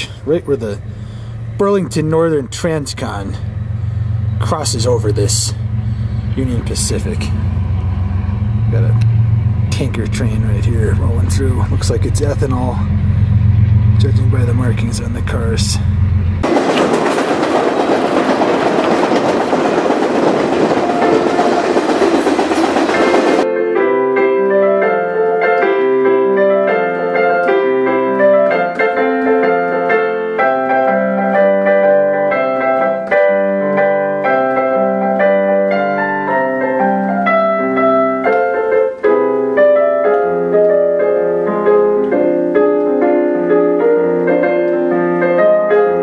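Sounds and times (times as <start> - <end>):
piano music: 0.0 - 46.0
rushing noise of moving train: 2.5 - 23.5.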